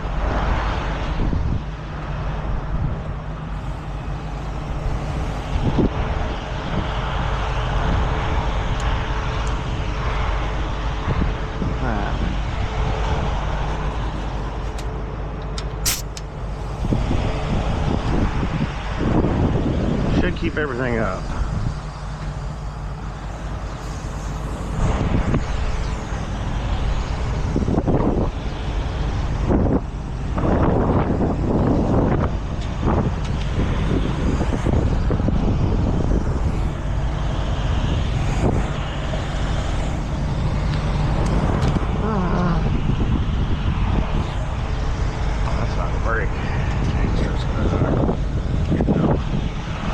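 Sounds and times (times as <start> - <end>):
truck engine idling: 1.7 - 18.1, 20.2 - 30.6, 31.4 - 49.0
compressed air hiss: 3.5 - 5.8, 15.8 - 17.0, 23.1 - 27.7.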